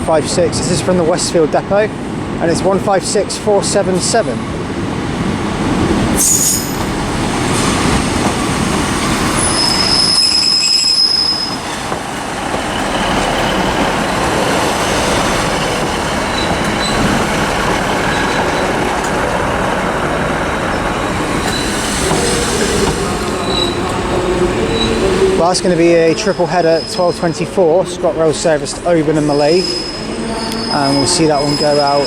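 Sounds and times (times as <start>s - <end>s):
diesel train engines and wheels rumbling: 0.0s - 32.0s
high-pitched wheel squeals: 6.2s - 6.9s, 9.4s - 11.8s, 16.3s - 17.1s, 20.7s - 23.9s, 29.3s - 32.0s.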